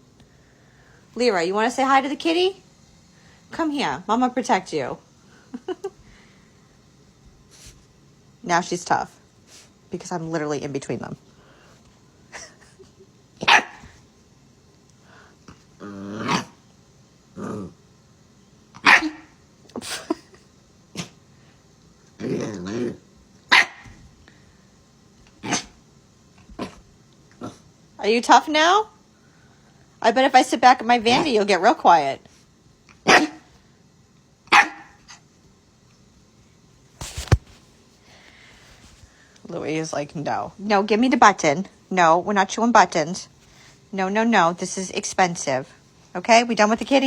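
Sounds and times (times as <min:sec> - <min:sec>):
puppy barking: 0:13.4 - 0:13.9, 0:18.8 - 0:19.3, 0:23.5 - 0:23.9, 0:33.1 - 0:33.5, 0:34.5 - 0:35.0
dog barking indoors: 0:13.4 - 0:14.0, 0:16.2 - 0:16.6, 0:18.7 - 0:20.0, 0:20.9 - 0:21.2, 0:22.6 - 0:24.1, 0:25.3 - 0:25.8, 0:33.0 - 0:33.6, 0:34.4 - 0:35.3.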